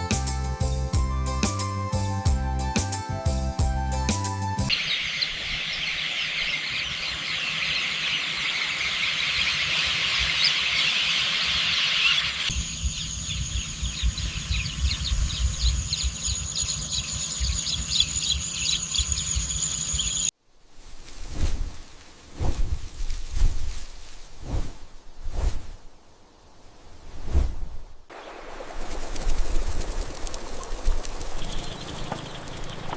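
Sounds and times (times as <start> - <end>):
chorus of high-pitched chirping: 4.7 - 20.3, 30.5 - 32.9
low wind rumble: 12.5 - 20.0, 20.6 - 32.9.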